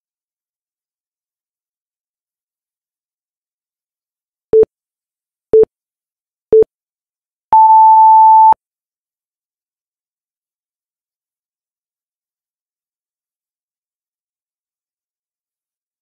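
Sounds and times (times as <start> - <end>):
long high beep: 7.6 - 8.6
short low beeps: 7.6 - 8.6.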